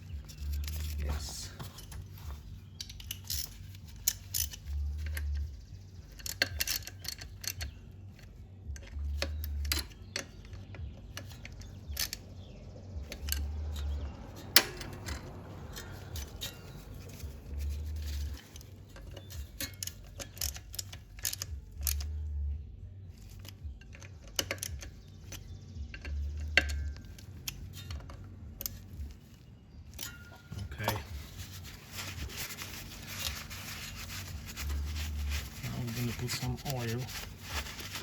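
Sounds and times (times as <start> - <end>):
metal tools clinking: 0.0 - 12.4, 13.0 - 22.1, 23.1 - 38.0
low hum: 10.7 - 38.0.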